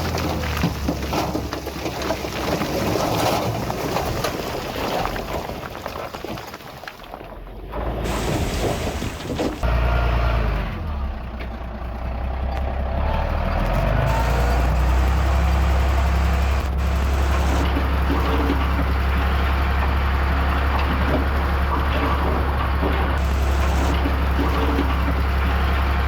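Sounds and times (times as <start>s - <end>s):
heavy machinery diesel engine drone: 9.6s - 26.0s.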